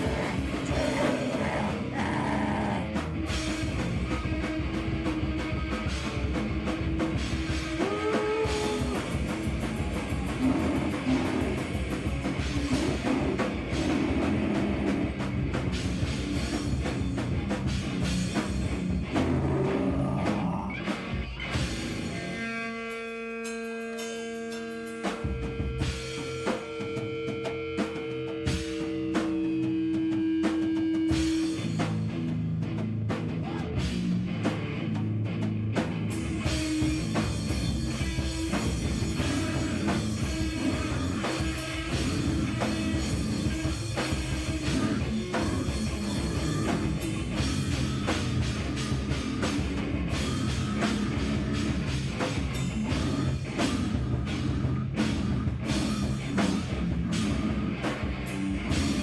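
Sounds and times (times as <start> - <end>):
held electric guitar notes: 0.0 - 17.5
heavy rock band playing: 0.0 - 59.0.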